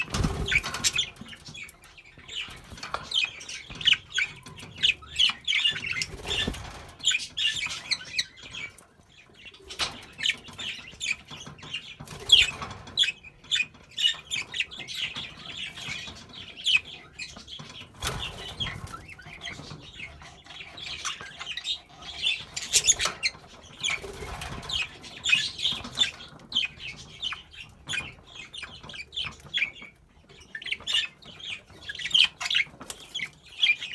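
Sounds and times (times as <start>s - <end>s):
wings flapping: 0.0s - 1.2s, 5.9s - 7.2s
budgerigars chirping: 0.0s - 33.9s.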